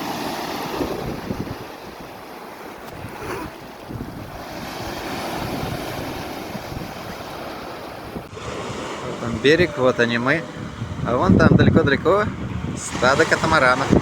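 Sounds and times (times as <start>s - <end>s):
sea waves washing: 0.0s - 14.0s
wind gusting on microphone: 0.0s - 14.0s.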